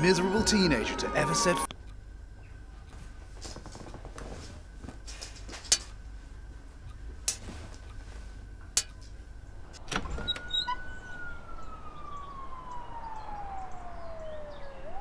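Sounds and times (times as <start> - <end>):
long whistling tone: 0.0 - 1.7, 10.2 - 15.0.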